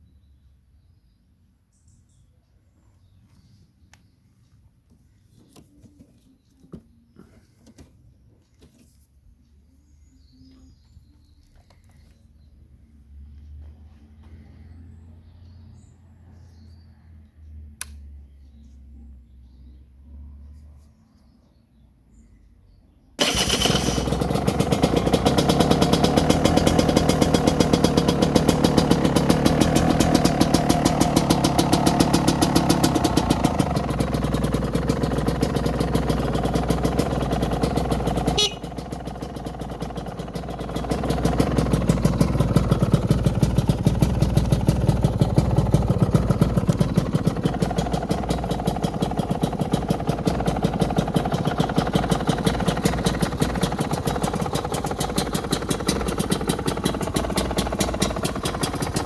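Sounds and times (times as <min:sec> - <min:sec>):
electric starter: 0:23.2 - 0:34.4
two-stroke engine running: 0:23.2 - 0:59.0.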